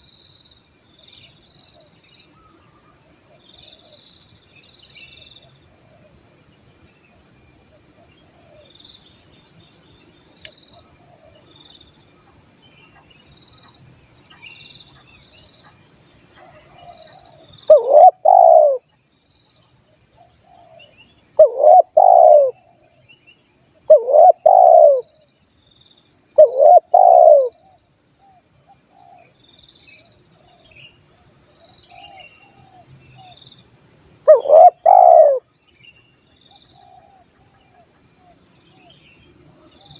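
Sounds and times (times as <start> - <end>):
insects trilling: 0.0 - 39.9
dove cooing: 16.4 - 18.8, 21.4 - 22.6, 23.9 - 25.1, 26.4 - 27.6, 34.3 - 35.4.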